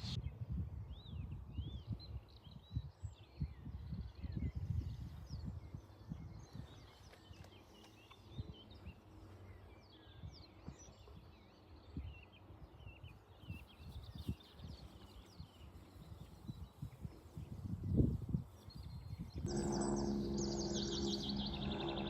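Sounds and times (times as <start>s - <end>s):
small birds chirping: 1.1s - 22.0s
low rumble: 19.5s - 22.0s.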